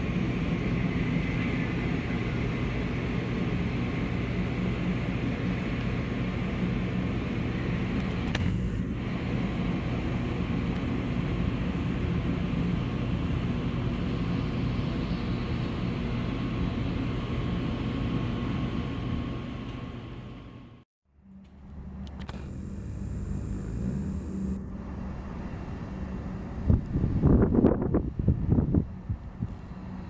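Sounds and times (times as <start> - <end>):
aircraft engine drone: 0.0 - 20.7, 21.6 - 27.2
faint high whine: 22.0 - 25.6.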